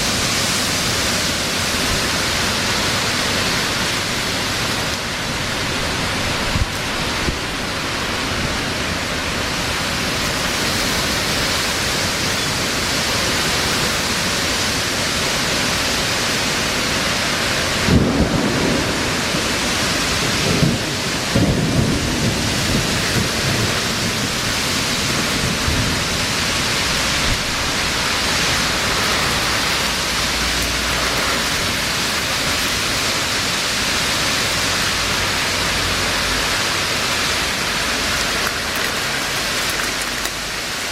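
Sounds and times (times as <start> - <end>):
heavy rain pouring: 0.0 - 40.9
thunder cracking and rolling: 17.8 - 27.6.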